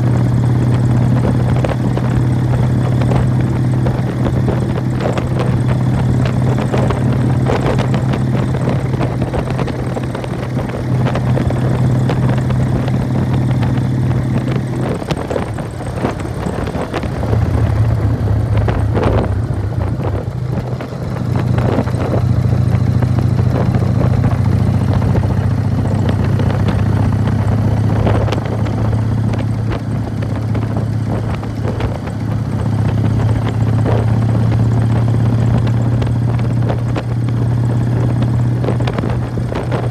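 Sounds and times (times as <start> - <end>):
motorcycle engine running: 0.0 - 39.9
primary drive clatter: 0.0 - 39.9.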